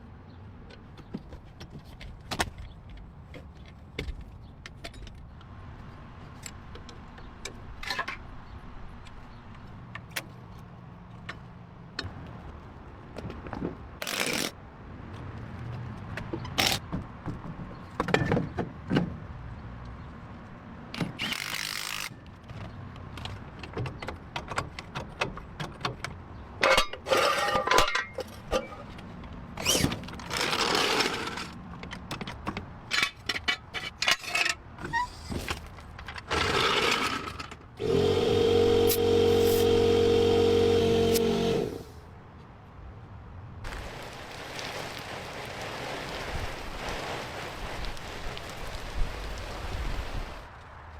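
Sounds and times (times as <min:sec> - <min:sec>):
short hissing or grinding bursts: 0:37.8 - 0:42.0.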